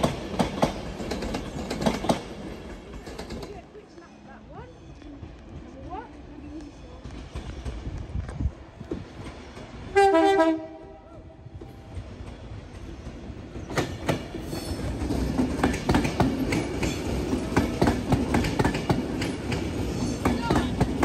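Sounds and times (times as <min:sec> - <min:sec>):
train wheels clattering over joints: 0:00.0 - 0:04.2, 0:11.6 - 0:21.0
train rumble: 0:00.0 - 0:21.0
train horn blast: 0:09.9 - 0:11.3.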